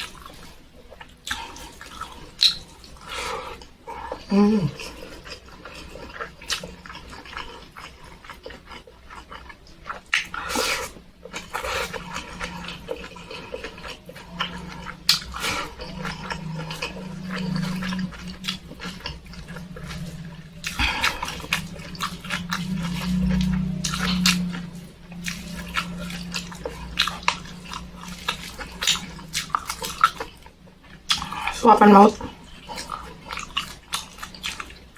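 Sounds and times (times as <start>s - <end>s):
food crunching: 0.0s - 34.9s
person chewing and lip-smacking: 0.0s - 34.9s.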